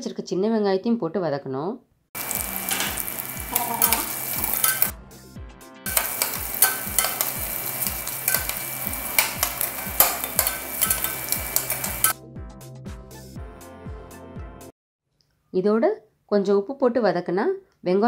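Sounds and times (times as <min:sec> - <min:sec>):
metal spoon scraping a pot: 0:02.2 - 0:04.9, 0:05.9 - 0:12.2
shallots sizzling in hot oil: 0:02.2 - 0:04.9, 0:05.9 - 0:12.2
soft background music: 0:02.2 - 0:12.2.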